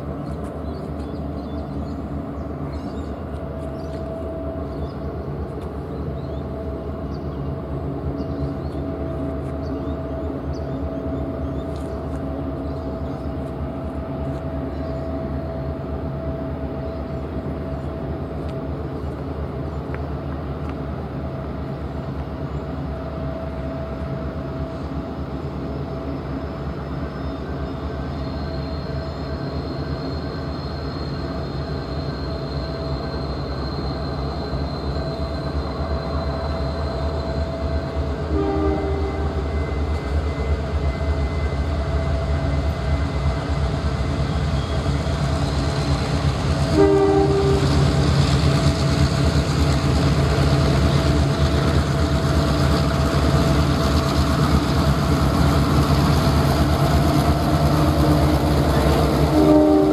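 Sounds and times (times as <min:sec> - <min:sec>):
diesel train engine rumble: 0:00.0 - 0:59.9
thin high squeal: 0:28.3 - 0:37.6.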